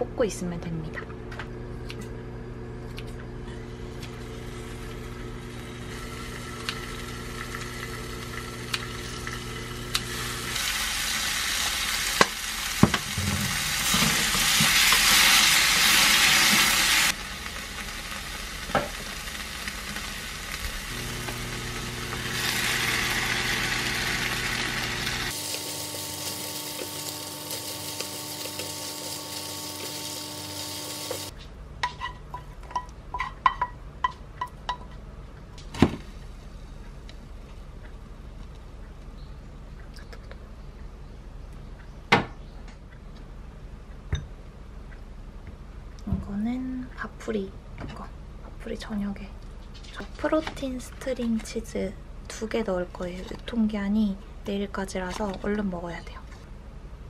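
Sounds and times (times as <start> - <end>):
food sizzling in a frying pan: 4.2 - 31.3.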